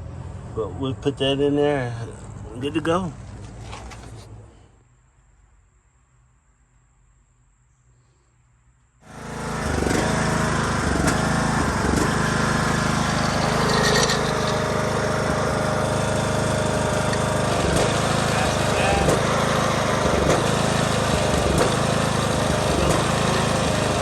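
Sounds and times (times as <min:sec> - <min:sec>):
riding lawn mower engine running: 0:09.0 - 0:24.0.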